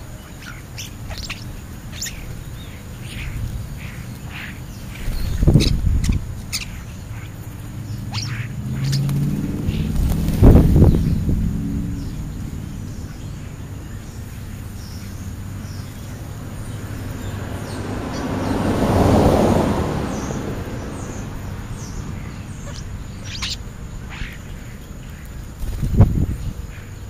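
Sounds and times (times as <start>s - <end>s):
high bird chirps: 0.0s - 11.2s, 21.8s - 24.6s
vehicle passing: 0.0s - 27.0s.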